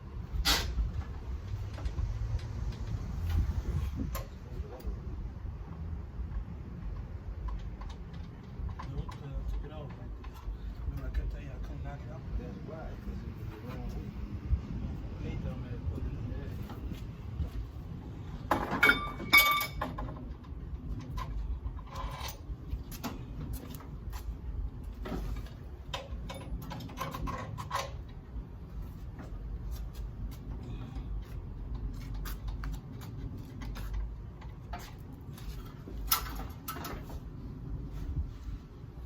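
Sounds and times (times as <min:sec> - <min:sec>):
metal tools clanking: 0:18.5 - 0:20.2
ringing metal clang: 0:18.7 - 0:20.0.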